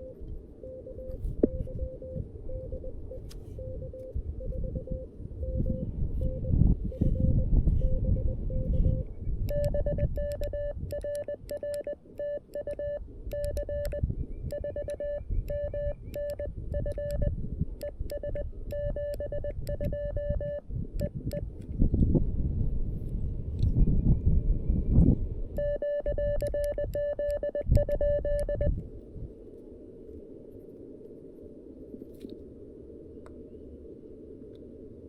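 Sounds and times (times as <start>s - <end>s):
morse code beeps: 0.0s - 21.4s, 25.6s - 28.8s
keying clicks: 9.5s - 21.4s, 25.6s - 28.6s.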